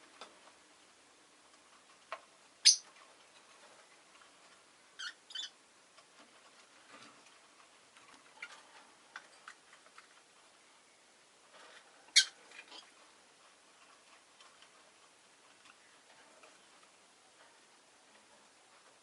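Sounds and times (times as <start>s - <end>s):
small clicks and taps: 1.5s - 2.3s
lovebird chirping: 2.6s - 2.9s, 5.0s - 5.6s, 12.1s - 12.9s.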